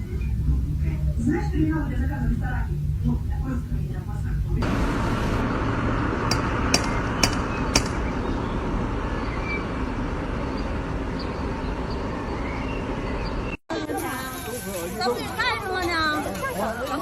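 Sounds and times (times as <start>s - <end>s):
steady background noise: 0.0s - 17.0s
sharp knocks: 6.2s - 8.1s.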